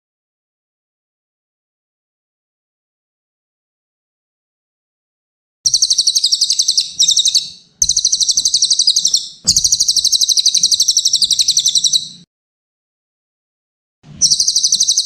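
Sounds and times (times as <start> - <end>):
bird singing high trilling song: 5.7 - 12.2, 14.2 - 15.0.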